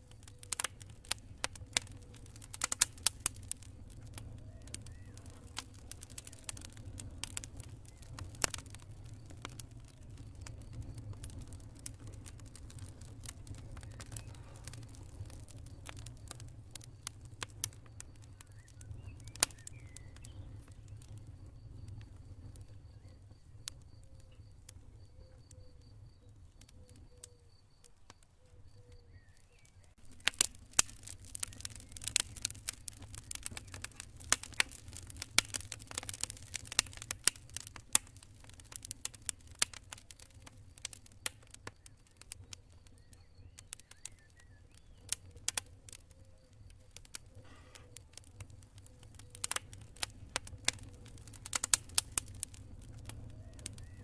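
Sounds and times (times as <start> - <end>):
campfire crackling and popping: 0.0 - 54.0
cricket chirping: 15.5 - 37.1.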